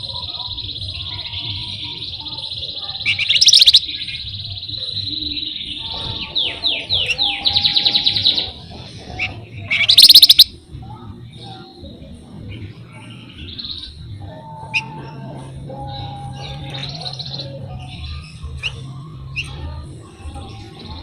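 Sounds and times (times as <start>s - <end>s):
harsh rapid bird rattles: 3.0s - 3.9s, 9.7s - 10.5s
songbird rolling trill: 3.0s - 4.0s, 9.7s - 10.5s.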